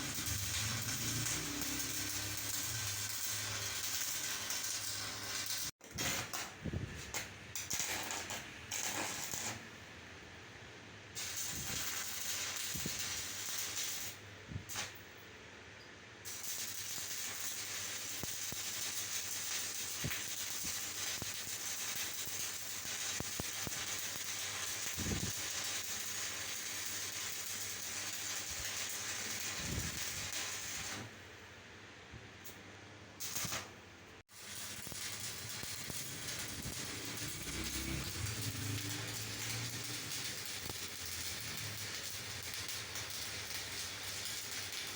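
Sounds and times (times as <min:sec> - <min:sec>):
metalwork hissing on a shaft: 0:34.4 - 0:41.8.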